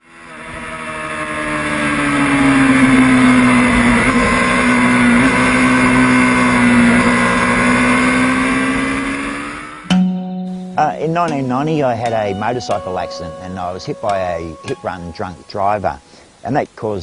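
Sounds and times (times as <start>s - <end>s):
motorcycle engine at high revs: 0.0s - 9.9s.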